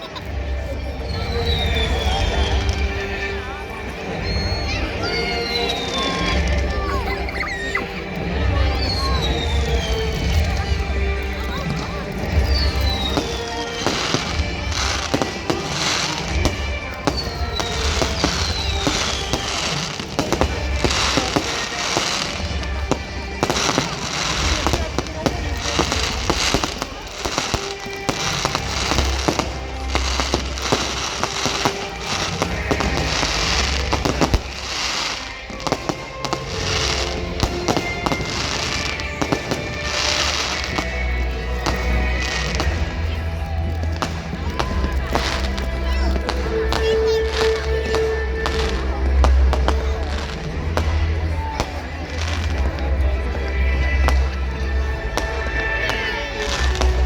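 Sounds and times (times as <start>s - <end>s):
crackling hissing fireworks bursts: 0.0s - 57.0s
fireworks bangs and cracks: 0.0s - 57.0s
falling firework whistles: 4.1s - 7.8s, 12.4s - 40.9s.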